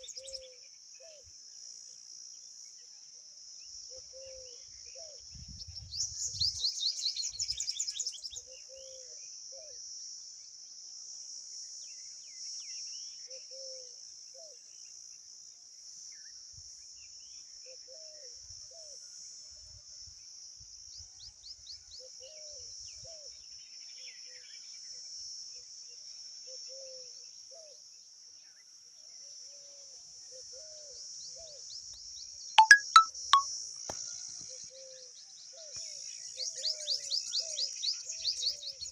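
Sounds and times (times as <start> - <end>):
high-pitched bird chirping: 32.6 - 33.1.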